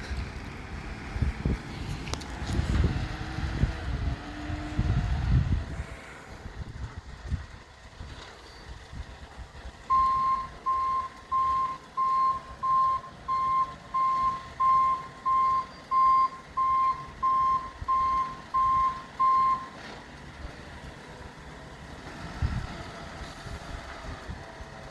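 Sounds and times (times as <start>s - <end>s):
low engine rumble: 0.0s - 24.9s
reversing alarm beeping: 9.9s - 19.8s.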